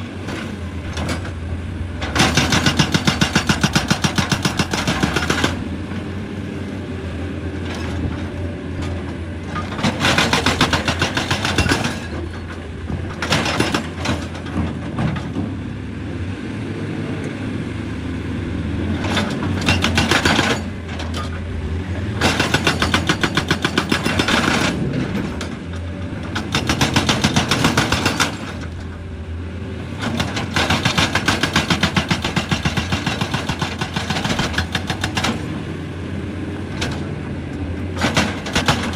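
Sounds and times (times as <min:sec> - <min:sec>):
diesel engine running: 0:00.0 - 0:38.9
hydraulic rock breaker hammering: 0:02.0 - 0:05.7, 0:09.6 - 0:15.4, 0:19.1 - 0:21.4, 0:22.2 - 0:28.8, 0:30.0 - 0:35.5, 0:38.0 - 0:38.9.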